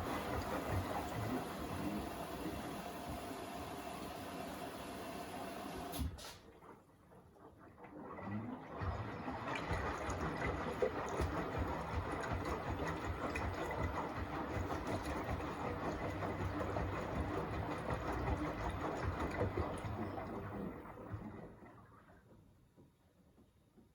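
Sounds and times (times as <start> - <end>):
washing machine drum tumbling: 0.0 - 5.1, 8.2 - 21.6.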